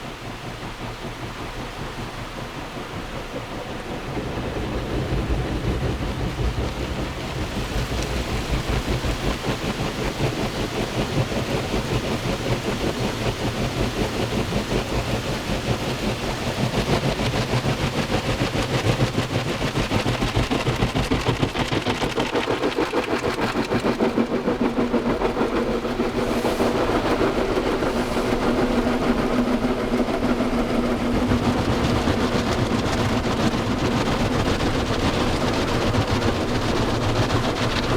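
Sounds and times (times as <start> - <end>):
car wash machine rumbling: 0.0 - 37.9.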